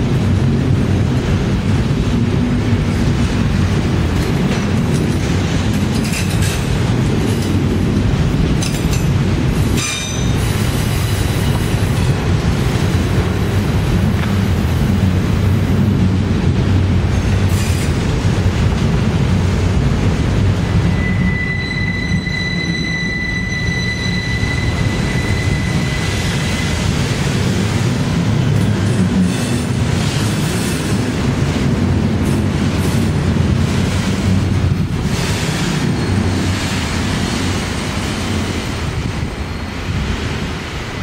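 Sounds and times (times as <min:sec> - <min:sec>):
freight train wheels rumbling: 0:00.0 - 0:41.0
high-pitched wheel squeal: 0:20.8 - 0:26.8.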